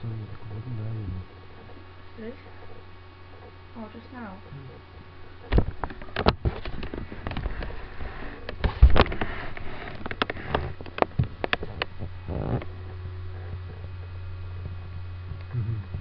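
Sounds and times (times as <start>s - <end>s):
steady low hum: 0.0s - 16.0s
sharp clicks and bumps: 5.3s - 12.8s.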